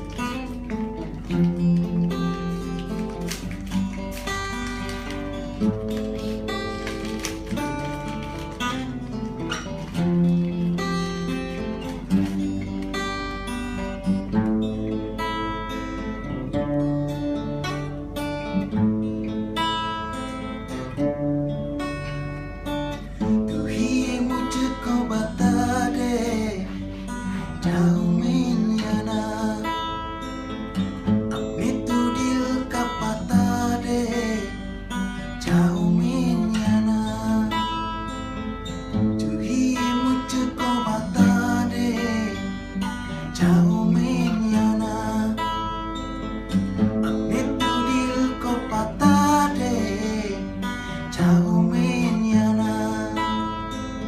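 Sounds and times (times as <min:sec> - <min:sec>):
acoustic guitar strummed and picked: 0:00.0 - 0:54.0
person singing: 0:23.5 - 0:30.0, 0:31.3 - 0:34.8, 0:35.4 - 0:38.0, 0:39.2 - 0:45.8, 0:47.0 - 0:53.7.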